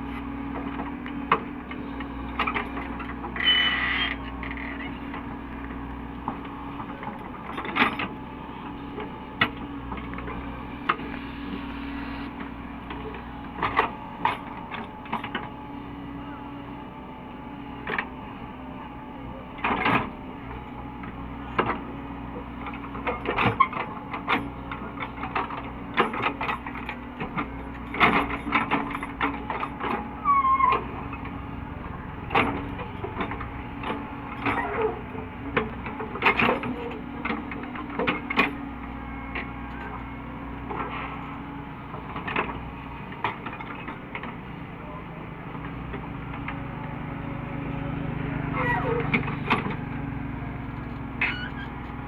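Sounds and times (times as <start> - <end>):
excavator diesel engine running: 0.0 - 52.0
brief squeal: 3.4 - 4.3, 51.2 - 51.8.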